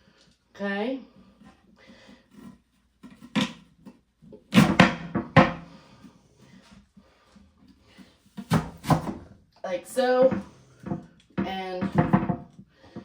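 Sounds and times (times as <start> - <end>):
apple corer clunking and knocking: 3.0 - 5.8, 10.0 - 13.0.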